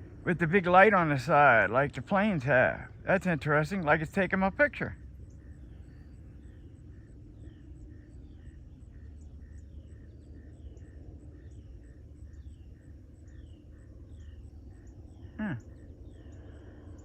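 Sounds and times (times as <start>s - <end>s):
insects chirping: 0.0s - 17.0s
short falling calls: 15.3s - 15.7s.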